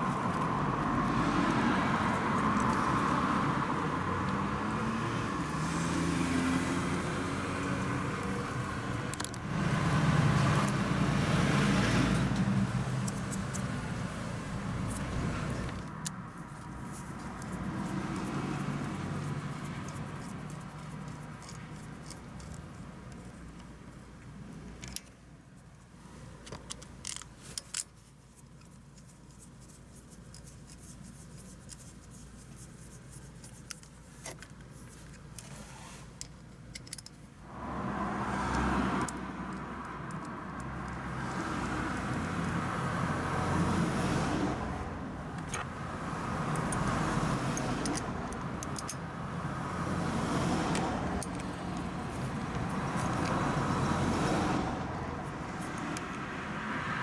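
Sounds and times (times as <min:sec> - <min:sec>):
van engine starting and running: 0:00.0 - 0:16.0, 0:37.4 - 0:56.7
small clicks: 0:46.5 - 0:49.0, 0:50.6 - 0:53.4.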